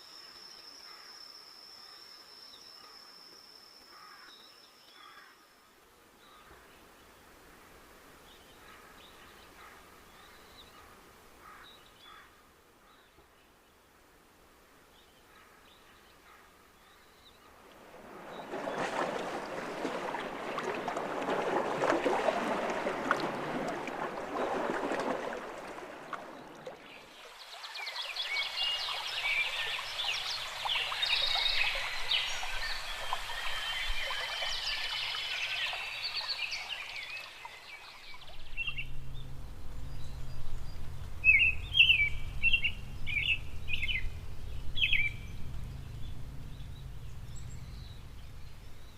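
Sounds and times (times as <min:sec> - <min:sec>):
high chirping calls: 0:41.2 - 0:48.9.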